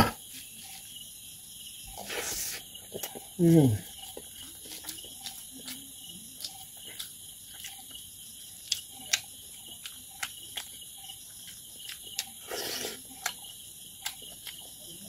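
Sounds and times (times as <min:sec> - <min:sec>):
chewing mouth clicks and lip smacks: 0:02.9 - 0:03.3, 0:04.0 - 0:08.0, 0:08.6 - 0:15.0.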